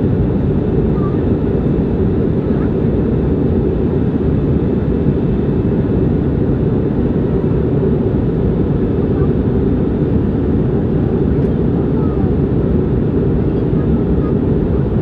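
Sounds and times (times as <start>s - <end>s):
airliner cabin engine noise: 0.0s - 15.0s.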